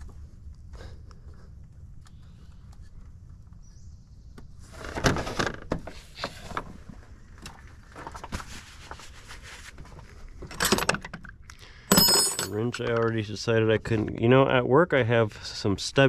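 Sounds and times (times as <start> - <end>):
metal hand tools clattering: 11.9 - 12.8.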